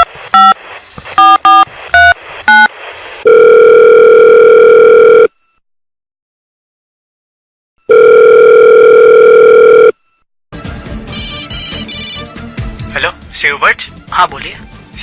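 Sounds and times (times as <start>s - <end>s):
phone ringing tone: 2.5s - 5.6s, 7.8s - 10.2s.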